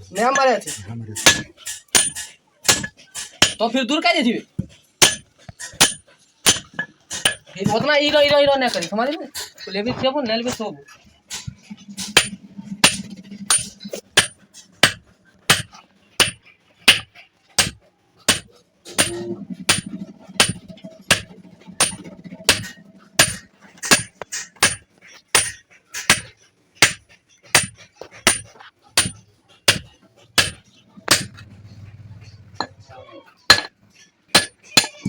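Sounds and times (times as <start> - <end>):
hammer striking metal: 0.2 - 3.6, 5.0 - 7.8, 11.3 - 31.6, 33.5 - 35.0.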